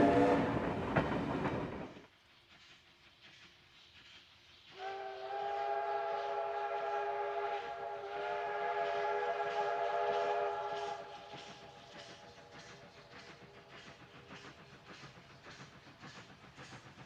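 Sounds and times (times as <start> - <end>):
steam locomotive whistle: 0.0 - 0.8, 4.7 - 12.3.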